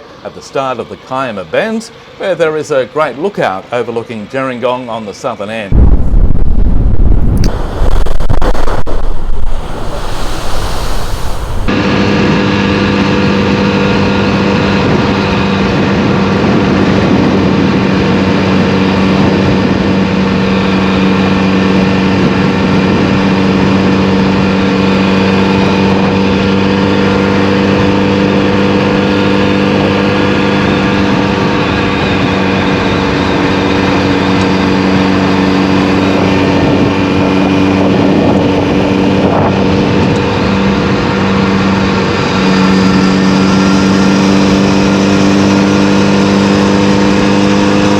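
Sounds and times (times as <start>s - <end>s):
wind and road noise: 5.7s - 47.9s
motorcycle engine running: 39.5s - 47.9s.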